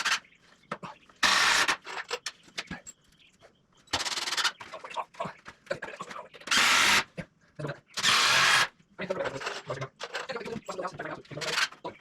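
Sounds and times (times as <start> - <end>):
power drill driving screws: 1.2 - 2.2, 6.5 - 7.1, 8.0 - 8.7.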